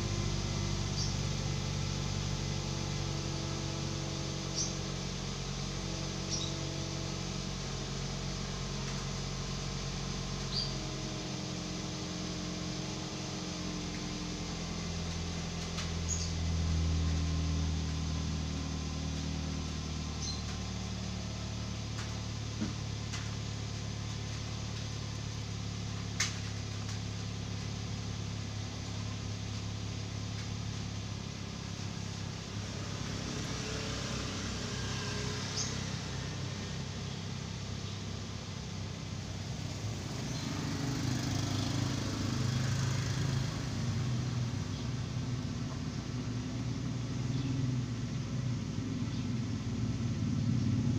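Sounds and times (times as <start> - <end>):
car engine hum: 0.0 - 50.9.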